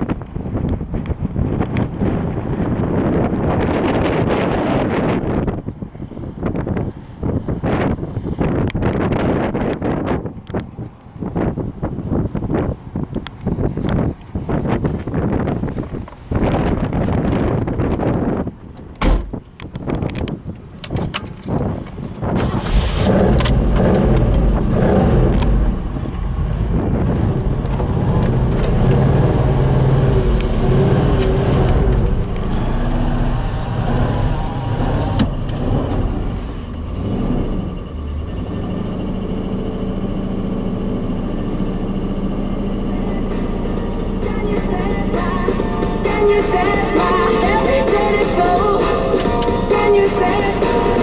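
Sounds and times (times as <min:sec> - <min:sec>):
car engine idling: 0:21.2 - 0:51.0.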